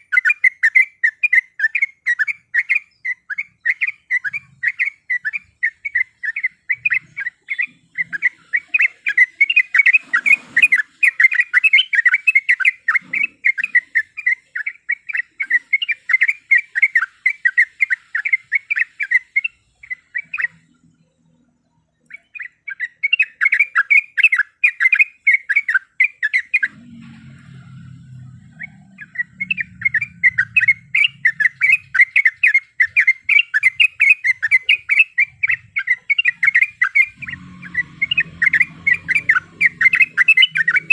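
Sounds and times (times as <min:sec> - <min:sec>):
bird singing chattering notes: 0:00.0 - 0:40.9
faint low rumble: 0:26.7 - 0:32.1.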